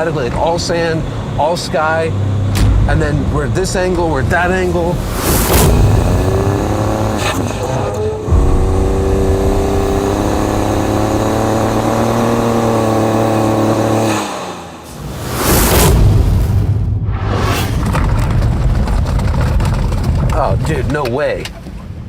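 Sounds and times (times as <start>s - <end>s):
truck engine pulling through sand: 0.0s - 16.5s.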